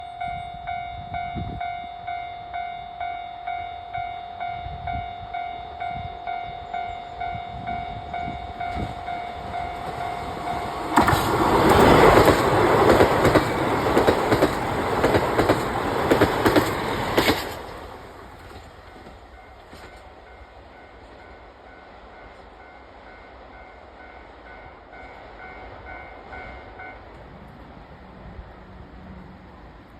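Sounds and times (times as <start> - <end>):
level-crossing alarm bell: 0.0 - 10.8
diesel train passing: 0.0 - 29.9
wheels clacking over rail joints: 9.0 - 20.0.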